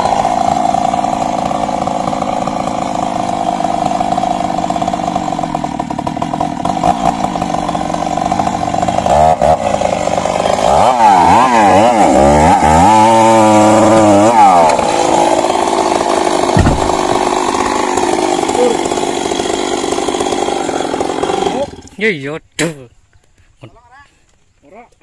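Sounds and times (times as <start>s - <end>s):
chainsaw running and revving: 0.0s - 22.0s
short low thump: 16.5s - 17.3s.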